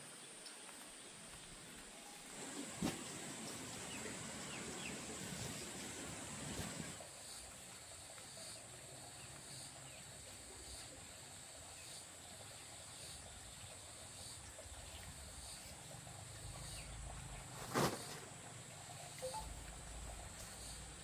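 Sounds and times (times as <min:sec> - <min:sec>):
insects droning: 0:00.0 - 0:21.0
faint pulsing chirp: 0:18.8 - 0:21.0.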